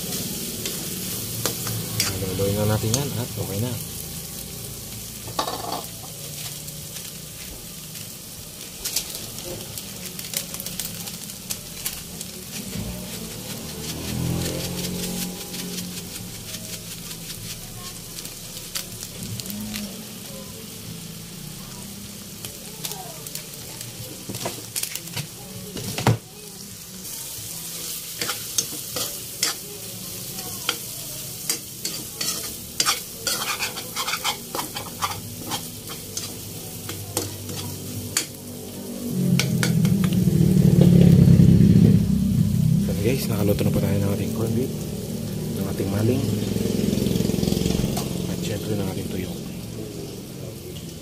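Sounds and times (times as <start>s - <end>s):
food sizzling in a wok: 0.0s - 51.0s
metal spatula scraping a pan: 27.8s - 29.6s, 30.3s - 38.4s.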